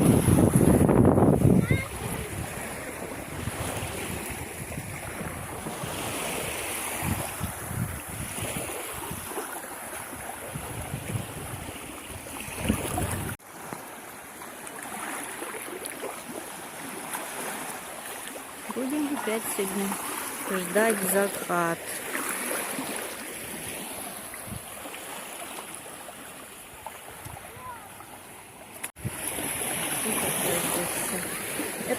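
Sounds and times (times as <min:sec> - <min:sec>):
wind buffeting microphone: 0:00.0 - 0:09.3, 0:10.1 - 0:13.4
sea waves on beach: 0:00.0 - 0:31.9.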